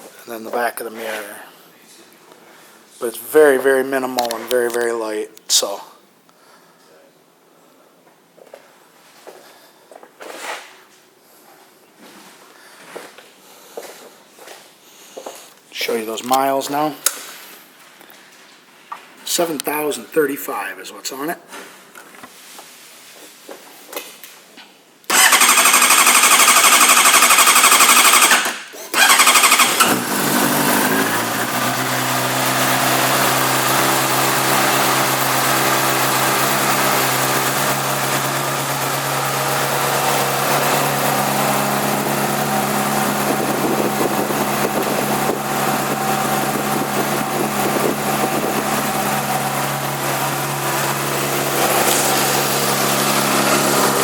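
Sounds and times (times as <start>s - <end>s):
motorcycle starter cranking: 25.1s - 54.0s
motorcycle engine idling: 29.0s - 54.0s.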